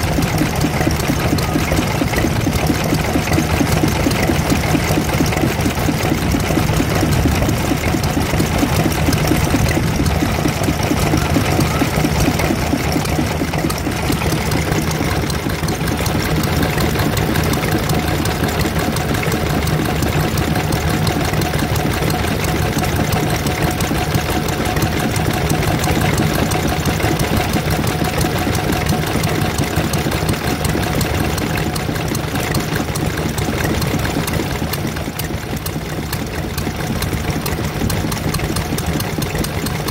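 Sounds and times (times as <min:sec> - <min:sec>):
stationary engine running: 0:00.0 - 0:39.9.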